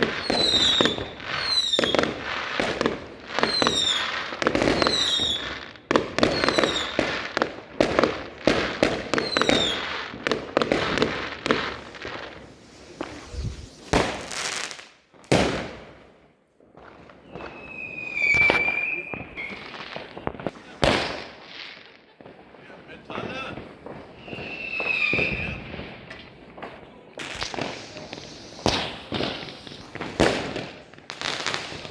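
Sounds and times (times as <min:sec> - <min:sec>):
falling firework whistles: 0:00.0 - 0:07.2, 0:09.1 - 0:10.0, 0:10.7 - 0:15.7, 0:17.1 - 0:21.9, 0:24.0 - 0:26.2, 0:27.2 - 0:31.9
fireworks bangs and crackling: 0:00.0 - 0:31.9.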